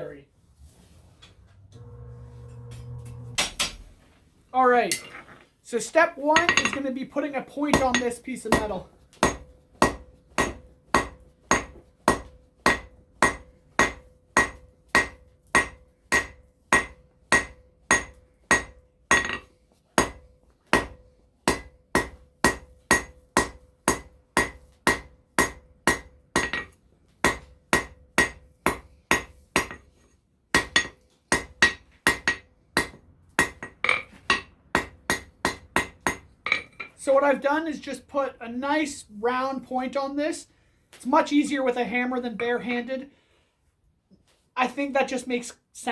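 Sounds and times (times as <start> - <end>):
hammer striking hot steel on anvil: 1.8 - 4.0, 6.4 - 6.8, 7.7 - 29.9, 30.5 - 36.9.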